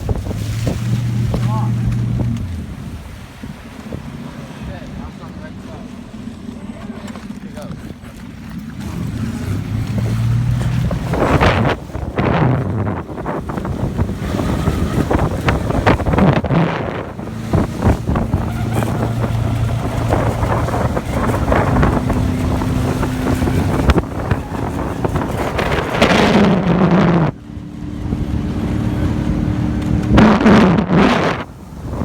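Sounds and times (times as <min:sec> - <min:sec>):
wind buffeting microphone: 0:00.0 - 0:05.5, 0:07.9 - 0:32.0.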